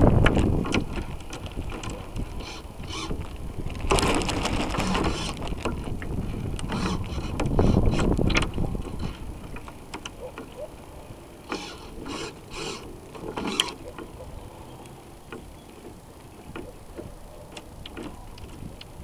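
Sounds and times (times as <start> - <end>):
wind buffeting microphone: 0.0 - 11.3, 13.8 - 19.0
small clicks and knocks: 14.8 - 19.0.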